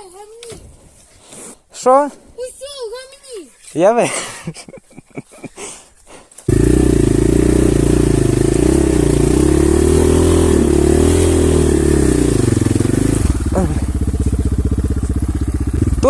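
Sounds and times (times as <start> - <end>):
dirt bike engine running: 6.5 - 16.0.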